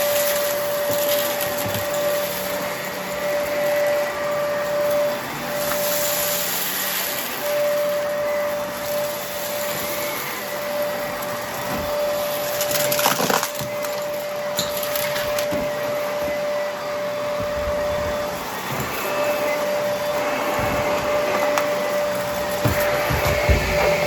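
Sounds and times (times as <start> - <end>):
vacuum cleaner running: 0.0 - 24.0
debris crackling in vacuum: 11.1 - 15.8.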